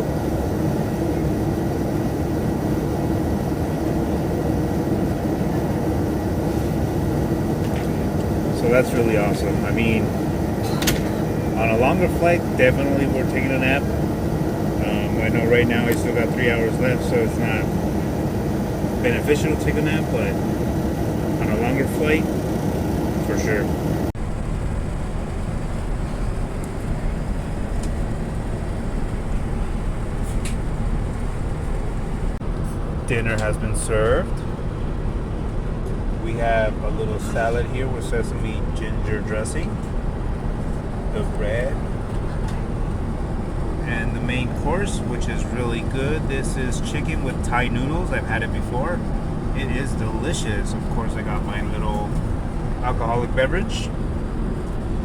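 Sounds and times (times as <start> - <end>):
aircraft engines rumbling: 0.0 - 55.0
faint steady hum: 0.0 - 55.0
rushing air: 16.8 - 38.9.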